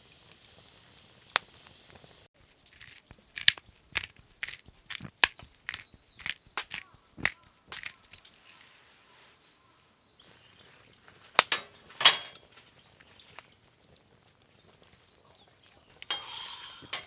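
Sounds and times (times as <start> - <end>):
sharp clicks and knocks: 2.8 - 8.4, 11.4 - 12.4.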